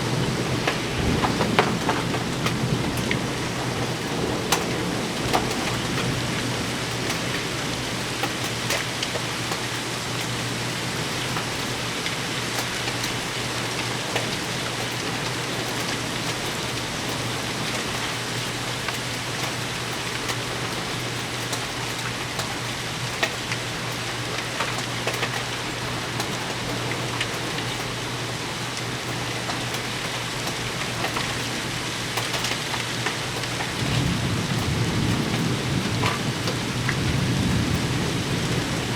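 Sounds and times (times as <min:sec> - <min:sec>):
low rumble of thunder: 0:00.0 - 0:08.0, 0:33.6 - 0:38.9
heavy rain falling: 0:00.0 - 0:38.9.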